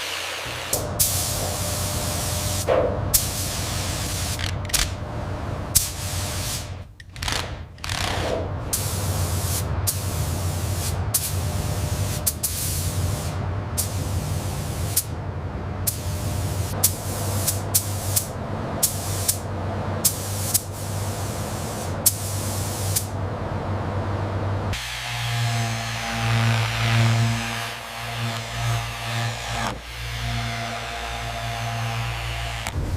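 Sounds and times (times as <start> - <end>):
compressed air spraying hiss: 0.0 - 4.5, 5.8 - 6.9, 8.7 - 15.1, 15.9 - 19.4, 20.0 - 23.2
constant low hum: 0.4 - 32.9
abrupt clicks: 4.3 - 5.0, 6.9 - 8.4.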